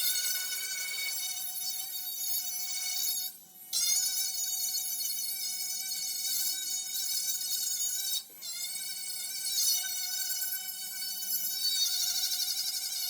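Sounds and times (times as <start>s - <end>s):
angle grinder whining: 0.0s - 1.2s.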